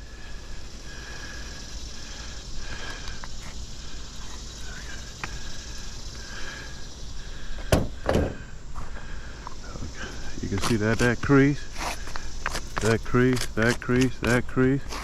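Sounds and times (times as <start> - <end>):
sharp knocks on roof shingles: 7.7 - 8.4.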